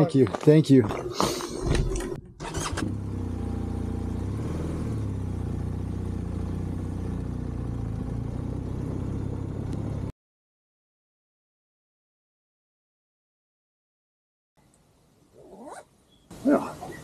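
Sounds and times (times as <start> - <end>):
vehicle engine running: 1.2 - 10.1.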